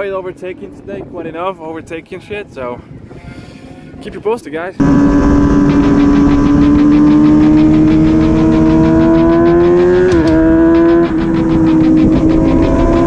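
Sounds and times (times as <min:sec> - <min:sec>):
motorcycle engine at high revs: 0:04.8 - 0:13.0.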